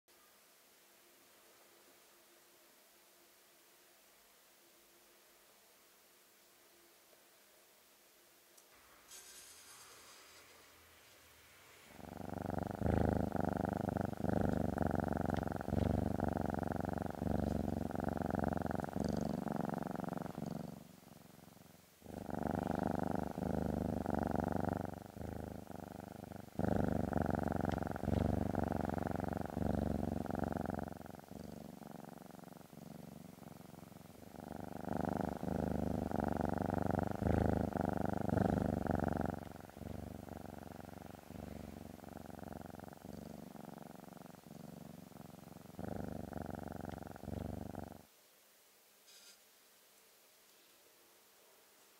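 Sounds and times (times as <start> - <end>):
cat purring: 8.6 - 48.1.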